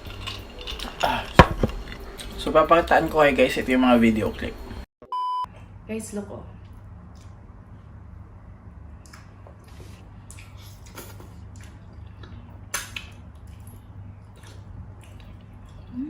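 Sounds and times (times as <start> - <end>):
wet squishing of eating: 8.9 - 15.9.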